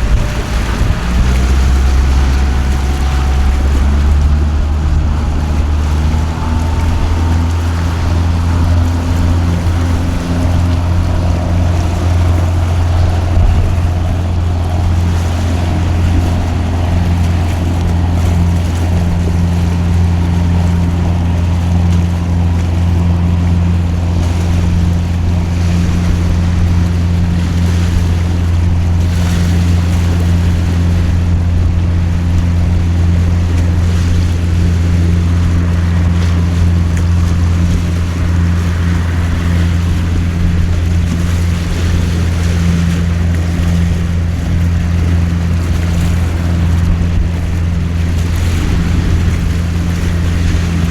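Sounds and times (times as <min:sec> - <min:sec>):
heavy rain: 0:00.0 - 0:24.4
boat engine droning: 0:00.0 - 0:50.9.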